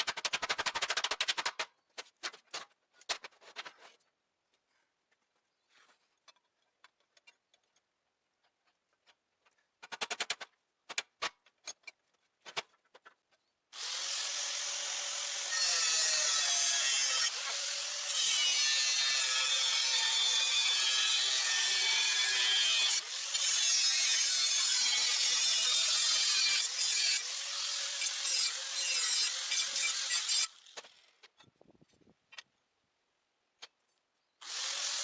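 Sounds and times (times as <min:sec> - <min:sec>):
power tool grinding metal: 0:13.8 - 0:30.8, 0:34.4 - 0:35.0.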